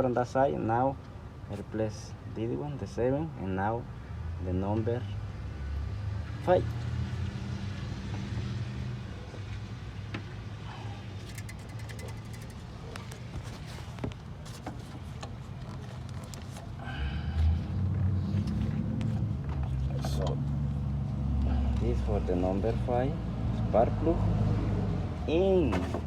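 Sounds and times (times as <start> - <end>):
hand tools clicking and rattling: 11.2 - 14.0.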